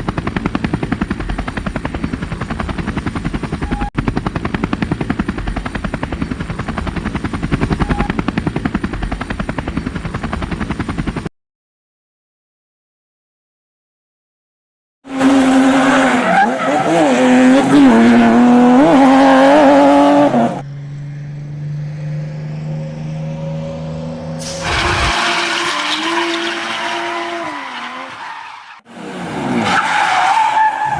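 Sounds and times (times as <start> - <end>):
vehicle engine revving: 15.1 - 28.1
low engine hum: 19.4 - 24.5.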